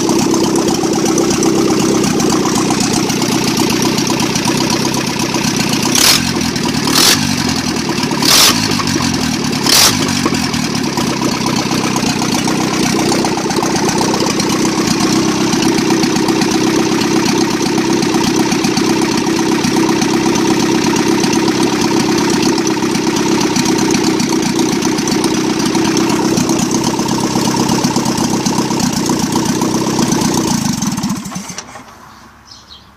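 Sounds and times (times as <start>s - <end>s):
car engine running: 0.0s - 32.8s
sharp engine cracks: 30.5s - 32.1s.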